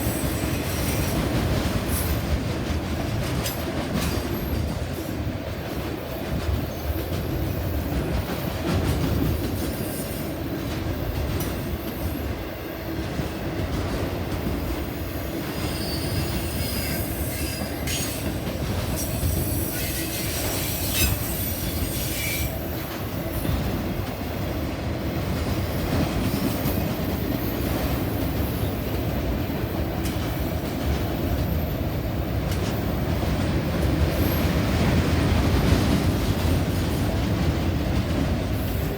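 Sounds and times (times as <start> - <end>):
train wheels rumbling on track: 0.0 - 38.9
wheel squeal: 15.7 - 18.2, 19.0 - 22.5.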